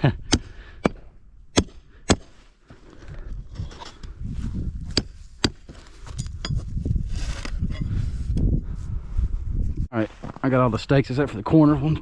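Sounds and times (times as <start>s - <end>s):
hammer striking stakes: 0.3s - 2.4s, 4.9s - 6.6s.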